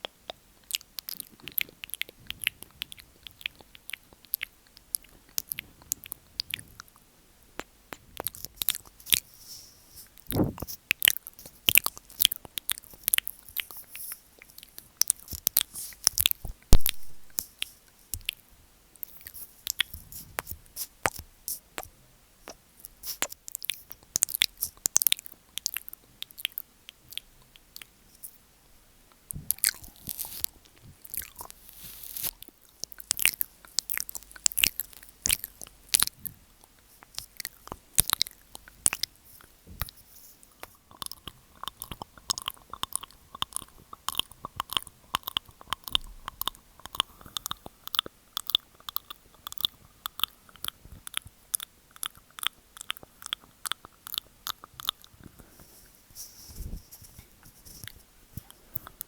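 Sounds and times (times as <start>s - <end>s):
mouth clicks and smacks: 0.0s - 9.3s, 10.0s - 28.4s, 29.1s - 59.0s.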